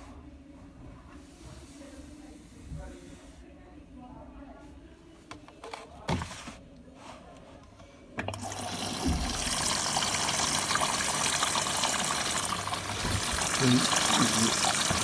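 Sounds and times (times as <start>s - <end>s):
water rushing through washing machine: 8.2s - 15.0s
washing machine knocks: 8.8s - 9.6s, 12.9s - 13.5s.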